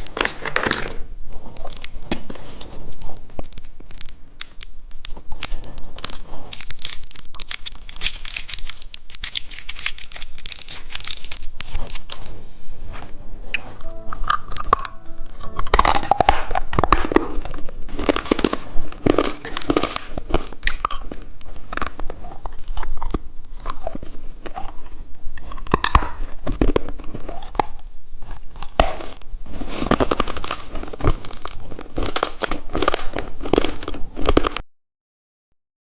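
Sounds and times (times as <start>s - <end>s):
hard candy crunching: 0.0s - 12.3s, 15.6s - 34.6s.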